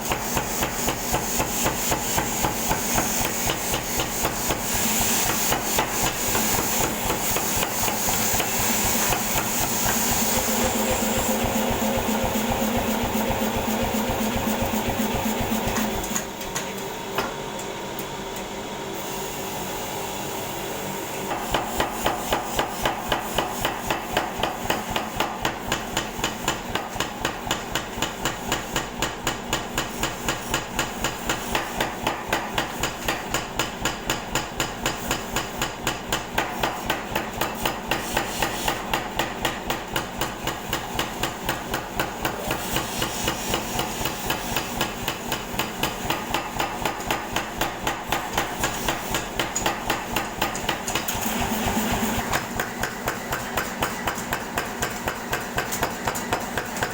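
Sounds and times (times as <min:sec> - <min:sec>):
air hammer striking: 0:21.3 - 0:56.9.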